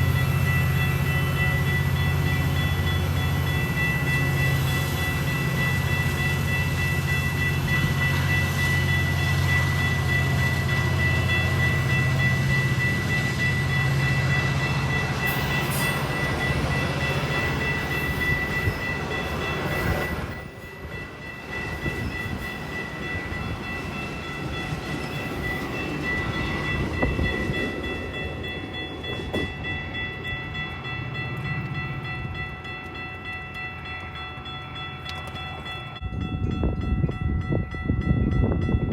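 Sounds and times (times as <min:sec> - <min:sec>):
steady high ringing tone: 0:00.0 - 0:38.9
train rumbling past: 0:00.0 - 0:38.9.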